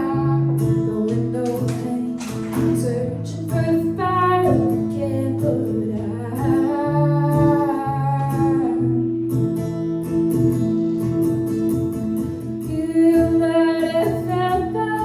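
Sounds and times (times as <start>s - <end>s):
woman singing slow song: 0.0s - 9.3s, 12.5s - 15.0s
acoustic guitar: 0.0s - 15.0s.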